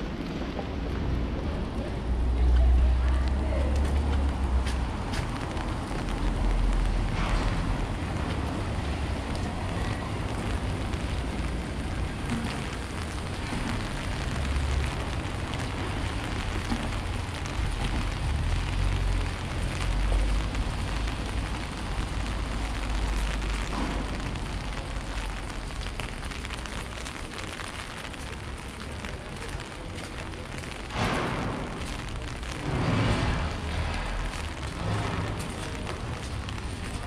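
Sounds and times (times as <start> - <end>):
steady rain: 0.0 - 37.0
low rumble: 30.3 - 37.0.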